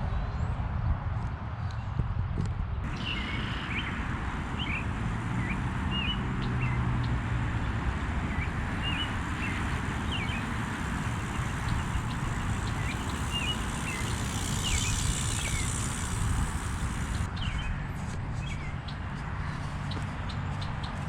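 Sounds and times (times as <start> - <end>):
small birds chirping: 2.8 - 17.7.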